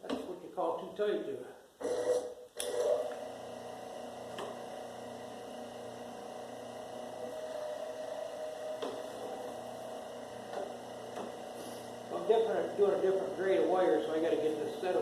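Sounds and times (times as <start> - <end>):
wire stripper motor humming: 1.8 - 15.0.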